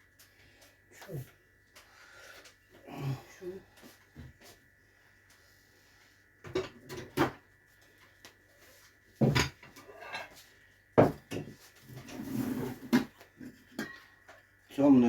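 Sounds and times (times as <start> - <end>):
objects knocking and clattering: 6.4 - 7.4, 9.2 - 10.4, 11.0 - 14.4.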